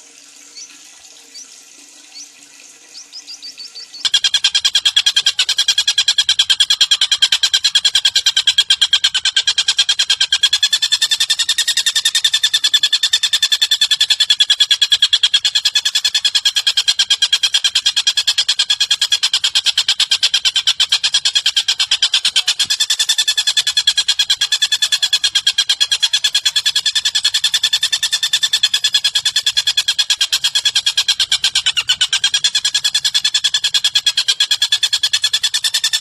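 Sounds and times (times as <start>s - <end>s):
faint rising bird chirps: 0.5s - 4.2s
rapid bird chatter: 1.3s - 36.0s.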